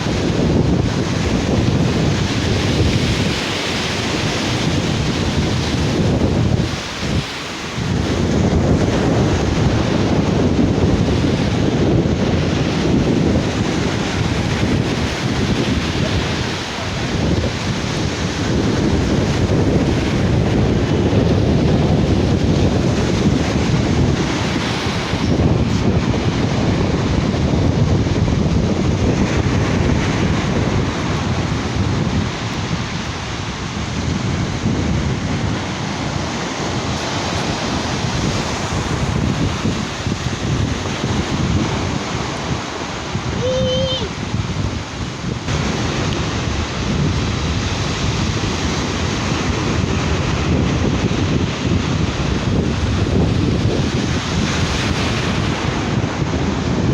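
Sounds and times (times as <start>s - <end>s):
surf washing onto beach: 0.0s - 56.9s
wind buffeting microphone: 0.0s - 56.9s.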